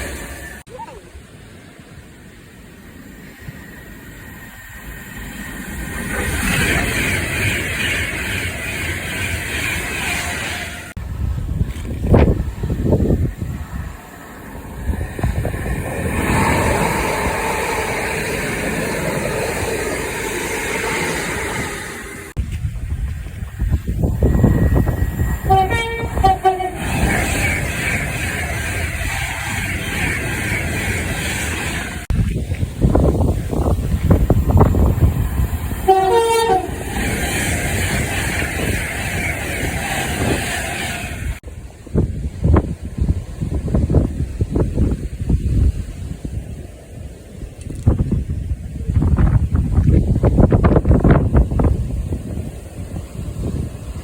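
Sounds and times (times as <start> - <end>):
train wheels rumbling on rails: 0.0 - 54.0
two-tone train horn blasts: 25.3 - 27.0, 35.8 - 36.8.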